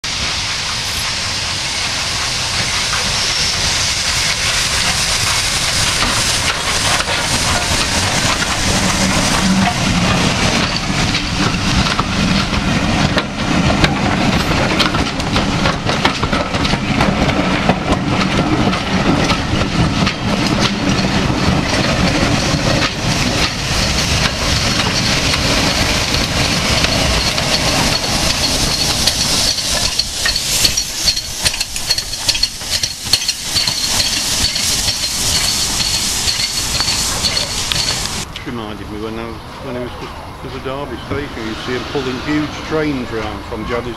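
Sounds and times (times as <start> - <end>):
steam locomotive hissing: 0.0 - 43.9
train wheels clattering: 0.1 - 38.3.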